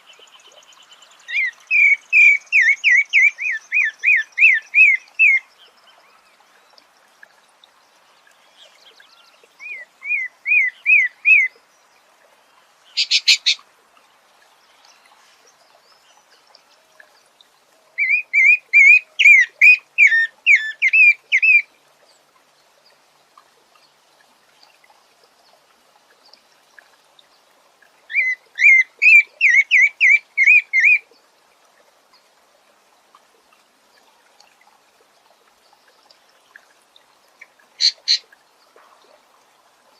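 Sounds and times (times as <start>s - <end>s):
bird singing clear notes: 13.0s - 13.6s.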